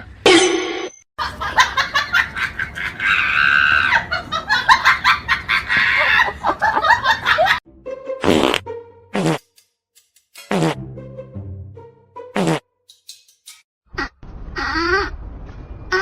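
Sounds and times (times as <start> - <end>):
person laughing hard: 1.2 - 7.6.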